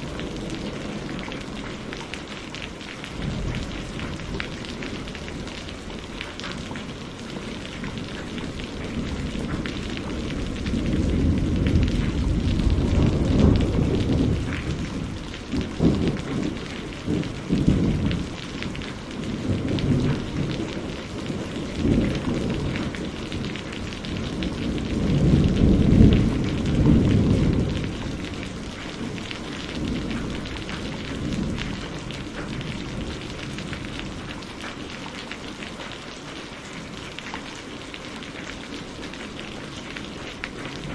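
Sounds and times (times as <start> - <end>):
heavy rain: 0.0 - 40.9
rolling thunder: 3.1 - 34.5.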